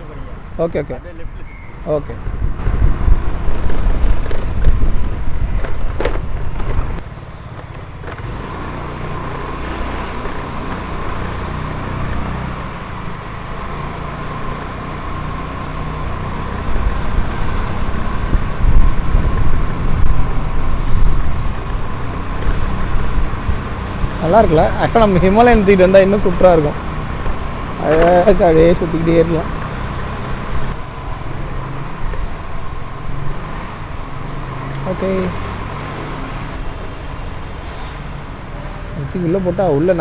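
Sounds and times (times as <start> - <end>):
wind buffeting microphone: 2.1 - 13.2, 16.2 - 34.0
motorcycle engine running: 2.3 - 38.9.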